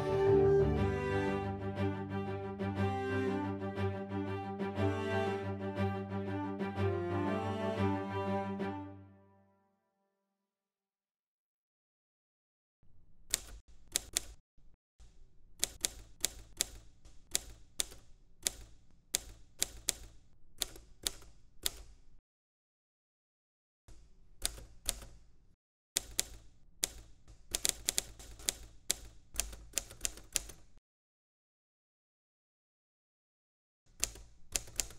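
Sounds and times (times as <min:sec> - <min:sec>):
typewriter key clacks: 0:34.0 - 0:34.9.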